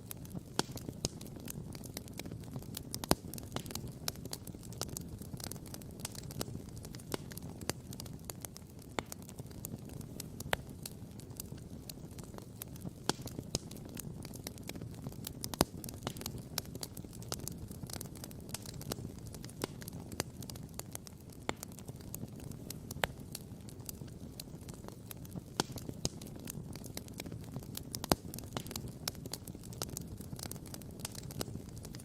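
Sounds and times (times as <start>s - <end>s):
campfire crackling and popping: 0.0s - 32.0s.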